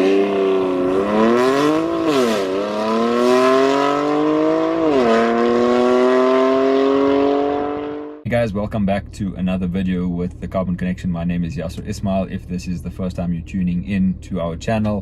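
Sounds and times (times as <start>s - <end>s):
car engine accelerating hard: 0.0s - 8.2s.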